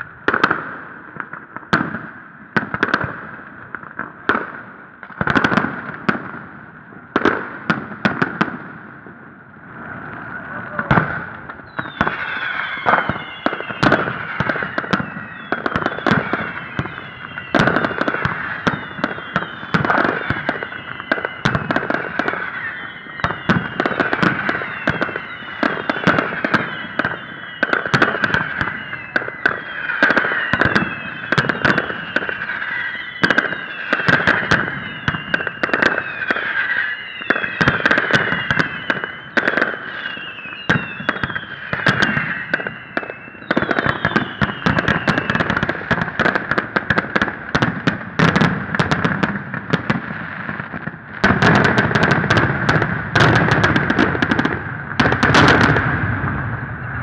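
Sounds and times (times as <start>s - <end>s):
fireworks bangs and crackles: 0.0s - 57.0s
steady high whistling tone: 9.6s - 21.5s, 22.2s - 45.6s
shrill falling whistles: 9.7s - 21.5s, 22.2s - 45.7s.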